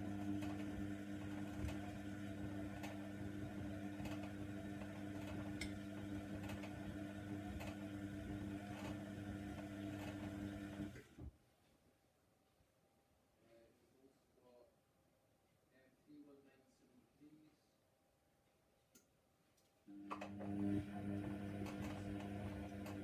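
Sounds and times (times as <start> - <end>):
washing machine motor hum: 0.0 - 11.3, 19.9 - 23.0.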